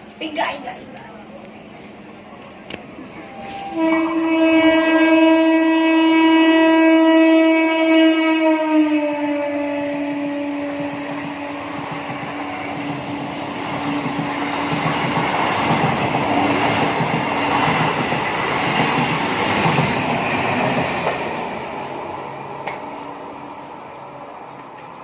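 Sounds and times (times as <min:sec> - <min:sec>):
train rumble and wheel clatter: 0:00.0 - 0:25.0
train horn: 0:03.2 - 0:12.4.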